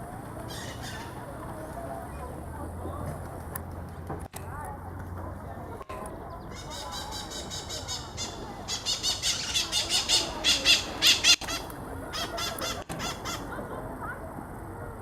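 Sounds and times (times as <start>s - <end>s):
birds squawking shrilly: 0.5s - 1.2s, 6.5s - 13.5s.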